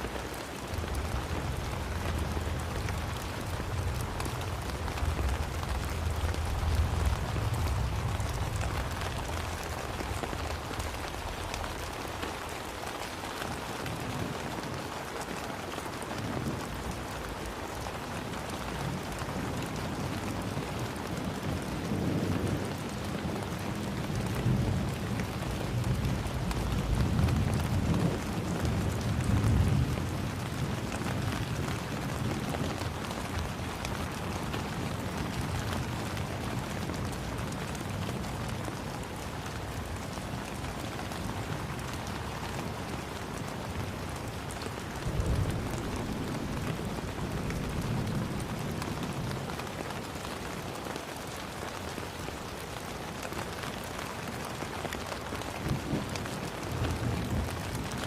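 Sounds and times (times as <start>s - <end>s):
steady rainfall: 0.0s - 58.0s
deep low rumbles: 0.8s - 12.2s.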